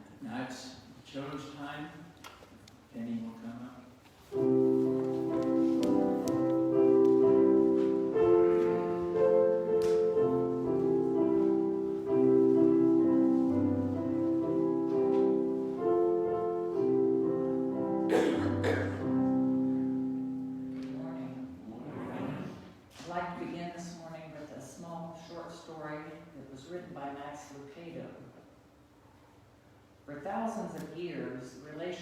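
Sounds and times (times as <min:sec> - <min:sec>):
slow sustained keyboard chords: 0:04.3 - 0:22.6.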